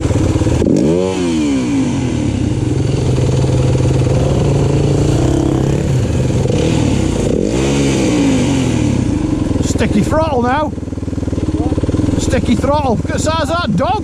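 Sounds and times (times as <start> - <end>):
dirt bike engine revving: 0.0 - 14.0
person talking: 11.5 - 14.0.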